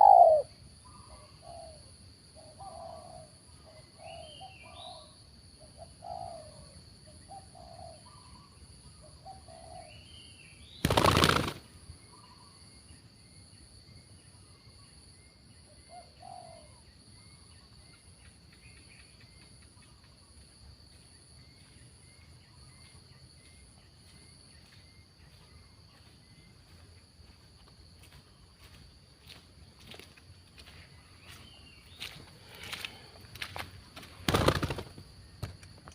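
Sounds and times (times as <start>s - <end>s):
doves cooing: 0.0s - 0.5s, 10.8s - 11.6s, 34.2s - 35.1s.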